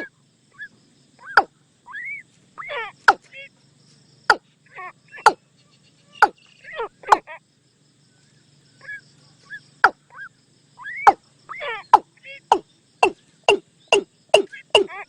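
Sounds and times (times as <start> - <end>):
watercock sharp falling calls: 6.0 - 7.4, 8.8 - 15.0.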